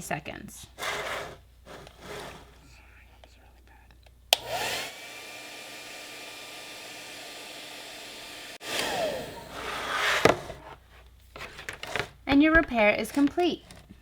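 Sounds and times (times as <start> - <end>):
hot-air blower whining: 0.8 - 2.6, 4.3 - 10.8.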